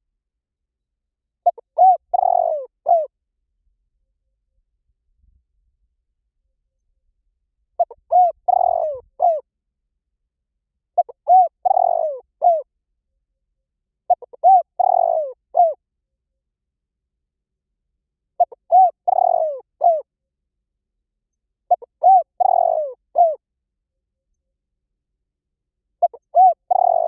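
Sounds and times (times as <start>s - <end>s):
dove cooing: 1.4s - 3.1s, 7.8s - 9.4s, 11.0s - 12.7s, 14.1s - 15.8s, 18.4s - 20.0s, 21.7s - 23.4s, 26.0s - 27.0s.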